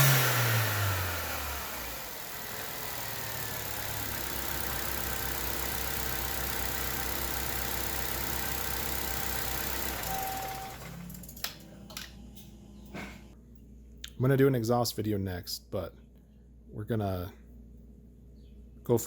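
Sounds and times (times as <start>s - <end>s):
car engine revving and idling: 0.0s - 11.1s.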